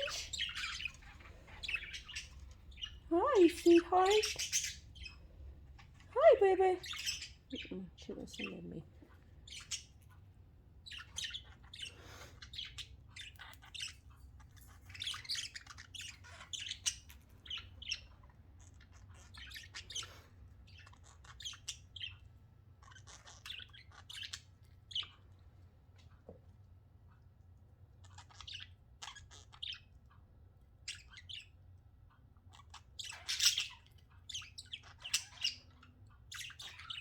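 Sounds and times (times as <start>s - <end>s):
budgerigars chirping: 0.0s - 25.5s, 28.0s - 37.0s
faint low hum: 0.0s - 37.0s.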